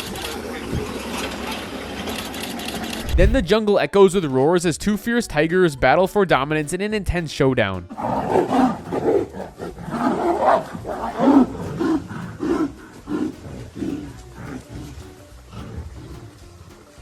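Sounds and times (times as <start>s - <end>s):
tigers roaring and snarling: 7.9s - 17.0s.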